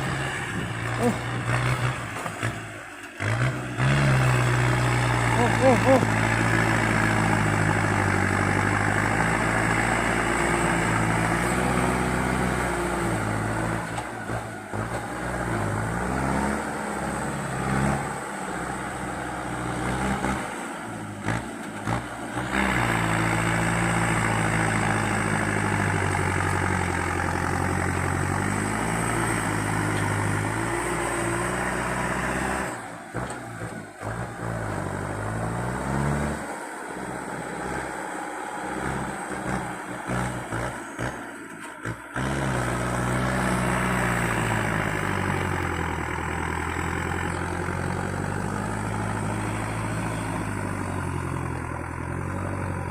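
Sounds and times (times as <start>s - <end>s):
tractor diesel engine revving: 0.0s - 52.9s.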